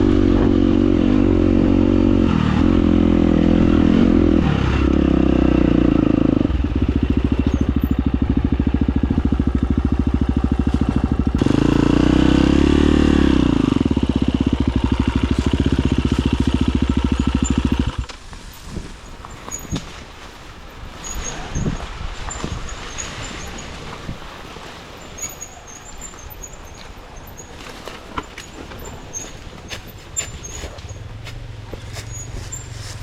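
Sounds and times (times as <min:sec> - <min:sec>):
motorcycle engine running: 0:00.0 - 0:19.9, 0:28.4 - 0:33.0.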